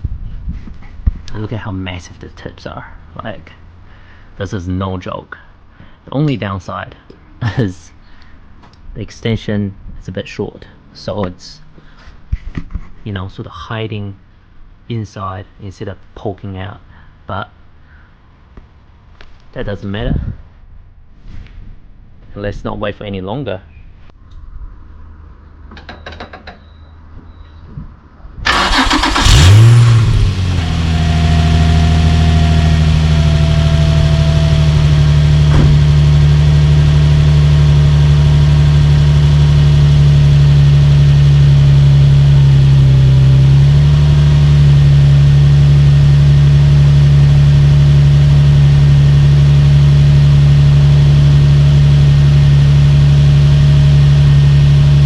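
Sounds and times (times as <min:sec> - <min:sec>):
car engine starting and idling: 0:28.4 - 0:55.0.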